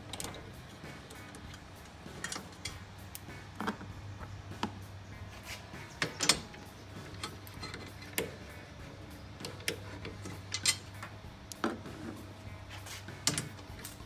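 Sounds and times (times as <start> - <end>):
steady low hum: 0.0 - 14.0
wrench clicking on bolts: 5.9 - 8.6, 9.4 - 11.8, 13.2 - 14.0.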